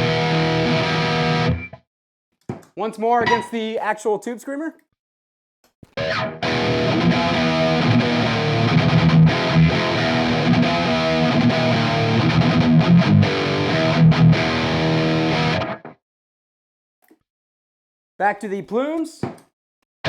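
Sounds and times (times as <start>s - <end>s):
overdriven electric guitar riff: 0.0s - 1.8s, 6.0s - 16.0s.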